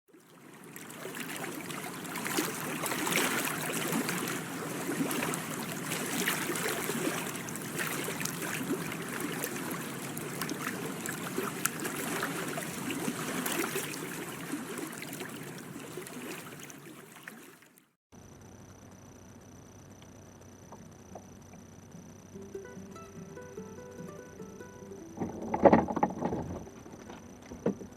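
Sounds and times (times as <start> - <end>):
water splashing and lapping: 0.1 - 18.0, 25.1 - 27.9.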